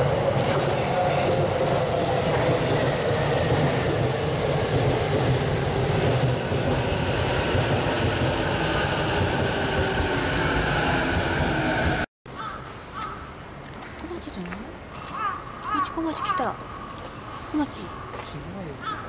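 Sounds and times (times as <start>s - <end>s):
train wheels rumbling on rail: 0.0s - 12.1s.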